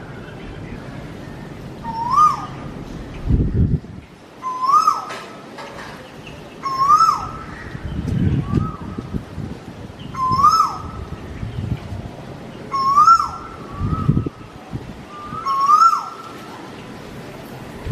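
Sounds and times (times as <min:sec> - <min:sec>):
softer answering bird calls: 0:01.8 - 0:02.6, 0:04.4 - 0:05.1, 0:06.6 - 0:07.8, 0:10.1 - 0:11.0, 0:12.7 - 0:14.4, 0:15.1 - 0:16.3
bird calling loudly: 0:01.8 - 0:03.3, 0:04.4 - 0:05.3, 0:06.6 - 0:09.0, 0:10.0 - 0:11.1, 0:12.7 - 0:14.4, 0:15.1 - 0:16.4
low rumbles: 0:17.0 - 0:17.9.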